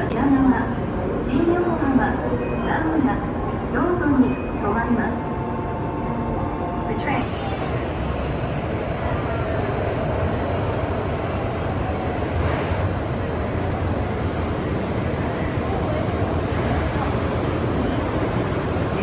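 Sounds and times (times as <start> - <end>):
train rumbling into station: 0.0 - 19.0
high brake squeal: 13.8 - 19.0.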